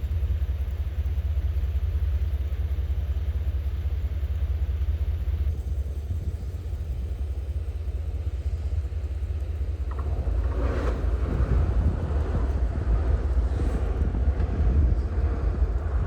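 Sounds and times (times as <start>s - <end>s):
wind buffeting microphone: 9.2s - 16.0s.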